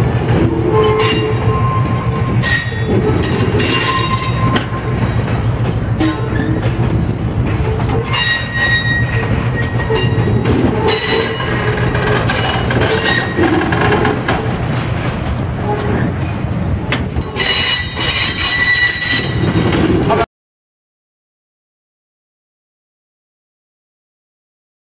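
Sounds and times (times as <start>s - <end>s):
railcars rumbling on rails: 0.0s - 20.3s
high-pitched wheel squeal: 0.7s - 4.8s, 7.7s - 13.6s, 17.4s - 19.6s.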